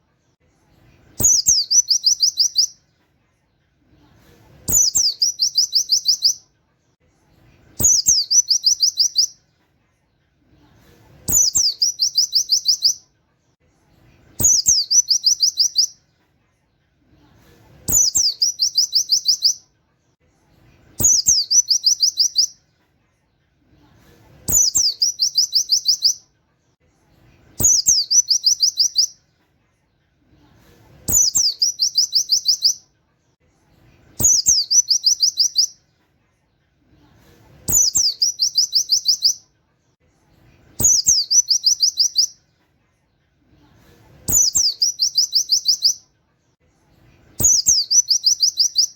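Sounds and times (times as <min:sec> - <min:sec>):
white-eye bird song: 0:00.0 - 0:02.9, 0:04.0 - 0:06.5, 0:07.2 - 0:09.4, 0:11.3 - 0:13.1, 0:13.8 - 0:16.1, 0:17.9 - 0:19.7, 0:20.7 - 0:22.7, 0:24.5 - 0:26.3, 0:27.5 - 0:29.3, 0:31.1 - 0:32.9, 0:34.0 - 0:35.9, 0:37.6 - 0:39.5, 0:40.5 - 0:42.5, 0:44.2 - 0:46.1, 0:47.2 - 0:48.9.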